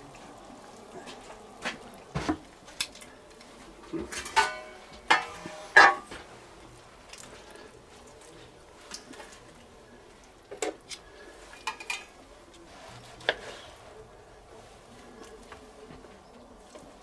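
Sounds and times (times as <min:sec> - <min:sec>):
dishes and cutlery clinking: 0:03.9 - 0:06.2, 0:11.5 - 0:12.2.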